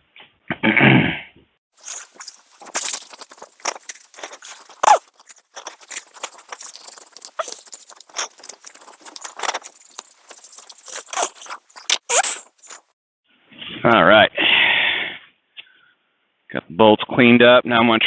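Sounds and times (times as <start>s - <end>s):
wire brush scrubbing metal: 1.8s - 12.9s.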